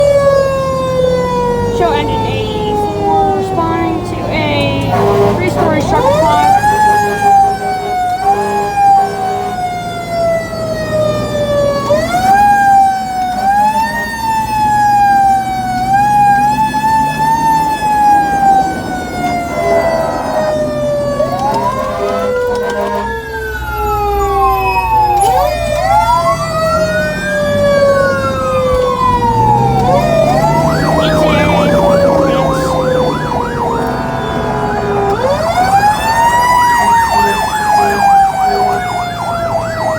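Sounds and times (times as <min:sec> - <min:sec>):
fire engine siren: 0:00.0 - 0:39.9
second siren wailing: 0:00.0 - 0:39.9.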